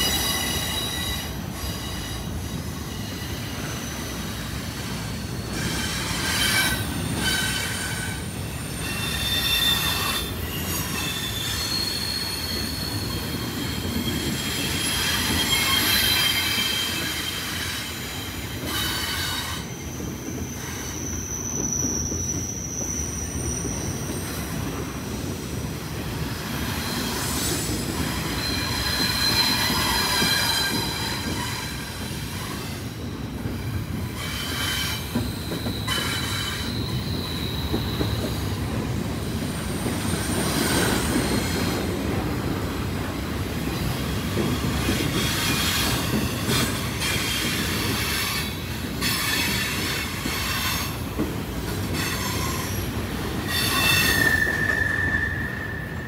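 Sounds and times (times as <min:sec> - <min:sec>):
high-pitched steel wheel squeal: 0:00.0 - 0:24.8, 0:26.5 - 0:33.0, 0:33.6 - 0:38.6, 0:43.6 - 0:51.0, 0:51.7 - 0:56.0
freight train low rumble: 0:00.0 - 0:56.0.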